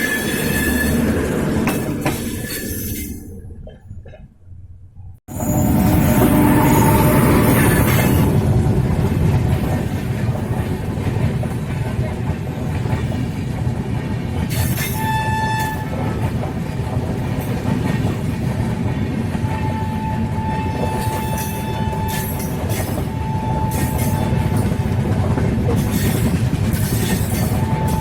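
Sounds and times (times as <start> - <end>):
train rumbling along track: 0.0 - 28.0
train horn blasts: 5.3 - 8.4, 14.8 - 16.0, 19.4 - 24.9, 27.4 - 28.0.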